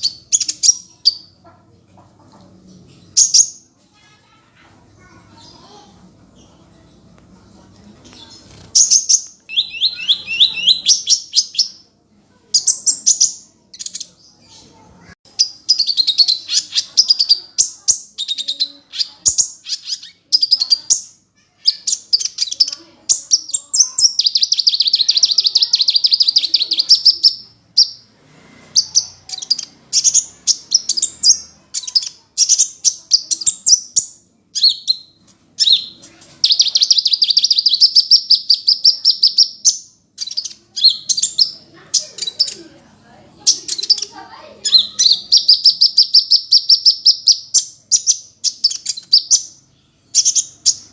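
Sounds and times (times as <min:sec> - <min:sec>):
fast rattling bird trills: 0:08.4 - 0:11.7
sunbird chirps and whistles: 0:08.8 - 0:11.8, 0:28.8 - 0:42.6, 0:43.4 - 0:50.9.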